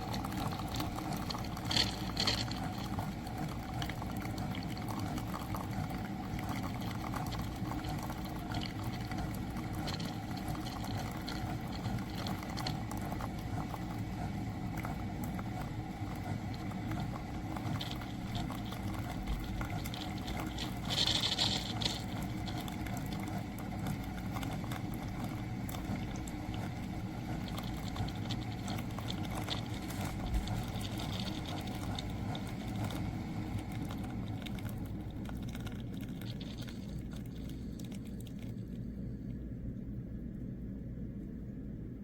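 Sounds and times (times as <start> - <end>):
water running and sputtering: 0.0 - 39.6
coffee maker pump hum: 0.0 - 42.0.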